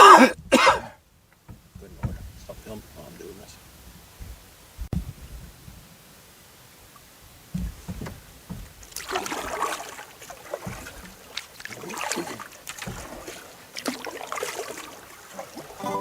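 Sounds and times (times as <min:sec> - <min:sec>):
low thumps: 0:01.4 - 0:03.0, 0:07.5 - 0:09.6
water dripping: 0:06.8 - 0:15.9
paddle splashing in water: 0:06.9 - 0:16.0.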